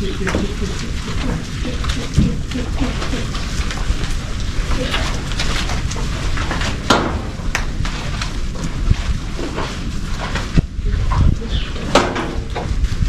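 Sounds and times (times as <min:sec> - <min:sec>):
knocks and rustles: 0:00.0 - 0:13.0
wind buffeting microphone: 0:00.0 - 0:13.0.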